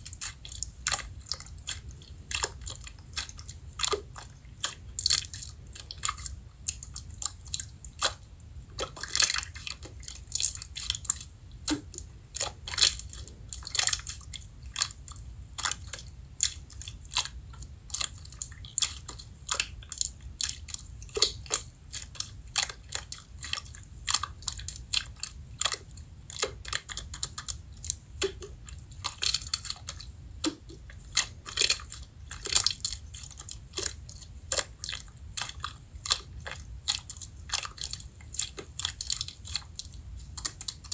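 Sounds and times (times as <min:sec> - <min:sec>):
slime squeezed crackling: 0:08.8 - 0:40.9.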